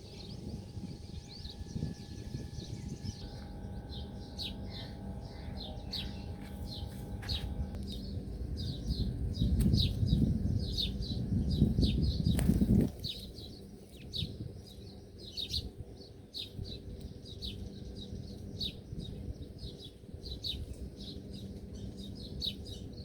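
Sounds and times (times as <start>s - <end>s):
low rumble: 0.0s - 14.6s
small birds chirping: 0.0s - 23.0s.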